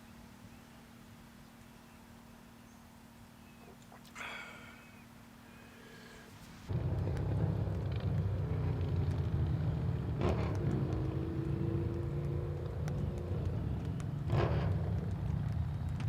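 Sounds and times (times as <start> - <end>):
steady low rumble: 6.6 - 16.0.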